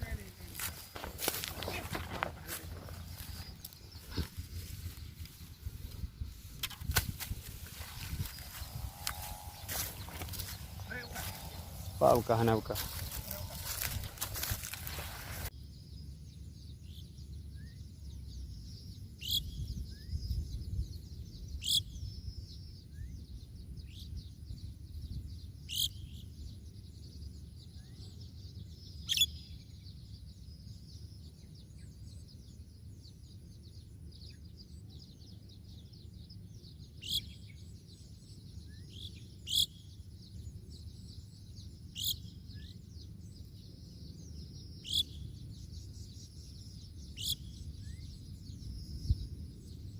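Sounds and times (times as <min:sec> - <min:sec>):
low rumble: 0:00.0 - 0:15.5
bird sharp high calls: 0:07.3 - 0:15.5, 0:29.0 - 0:29.5, 0:38.9 - 0:39.9, 0:44.7 - 0:45.4, 0:47.2 - 0:48.2.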